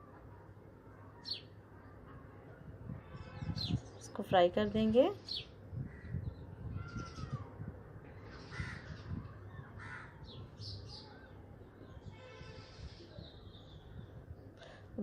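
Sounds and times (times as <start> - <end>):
harsh bird calls: 5.2 - 14.8.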